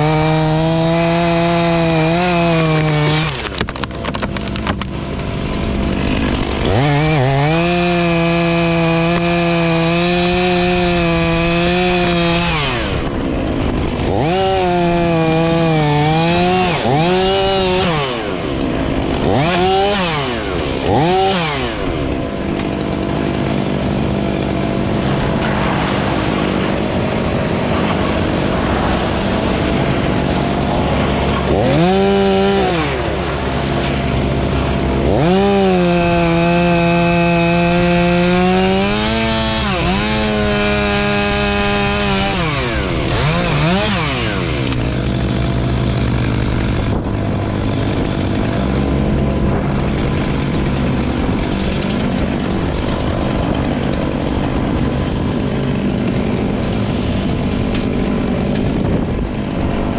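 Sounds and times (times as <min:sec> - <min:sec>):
chainsaw revving: 0:00.0 - 0:59.9
low engine drone: 0:20.2 - 0:36.8, 0:41.3 - 0:59.9.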